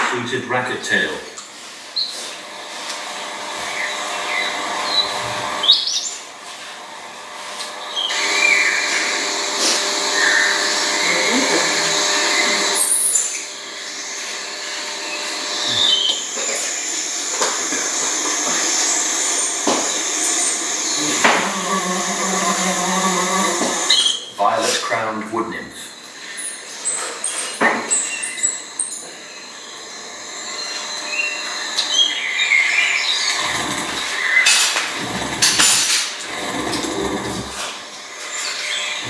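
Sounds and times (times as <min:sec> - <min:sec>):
steady whirring hiss: 0:00.0 - 0:39.0
high bird chirps: 0:30.5 - 0:34.6.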